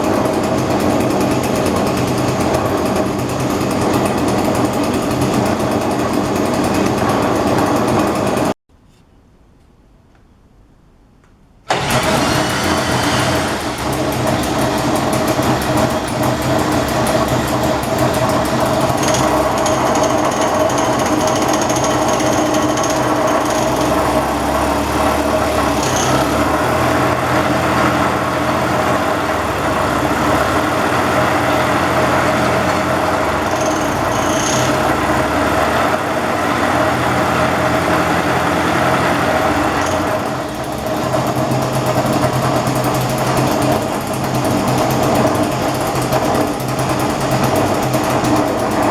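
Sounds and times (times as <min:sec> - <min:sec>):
small motor running: 0:11.7 - 0:48.9.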